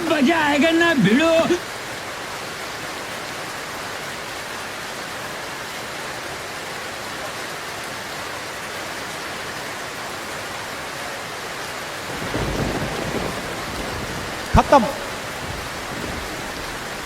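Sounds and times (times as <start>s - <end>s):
steady hiss: 11.8s - 17.0s.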